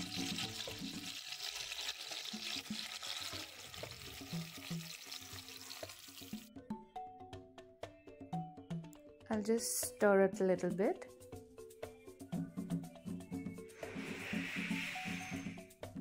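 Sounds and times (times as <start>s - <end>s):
onions sizzling in a pan: 0.0s - 6.5s
soft background music: 0.0s - 16.0s.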